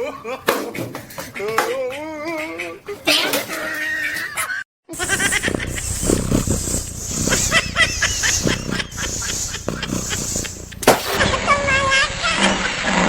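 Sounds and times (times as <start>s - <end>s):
animal chirping calls: 5.0s - 11.2s.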